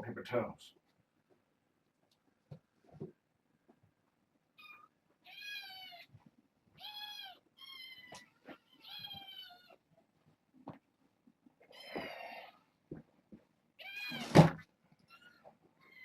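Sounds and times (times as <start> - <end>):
kitten meowing: 6.8 - 9.8.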